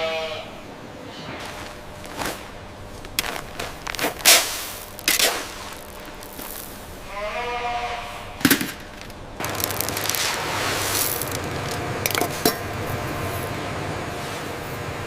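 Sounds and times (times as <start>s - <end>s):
goat bleating: 0.0s - 0.6s, 7.0s - 8.4s
sharp knocks and clatters: 8.4s - 10.4s.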